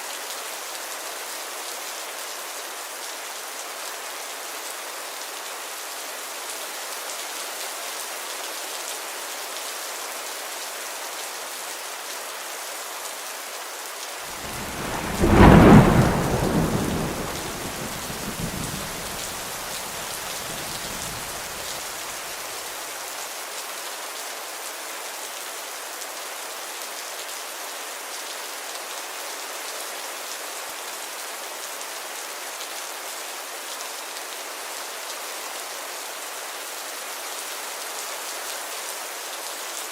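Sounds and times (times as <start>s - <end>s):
rain hissing: 14.3s - 22.6s
thunderclap rolling rumble: 14.4s - 21.7s.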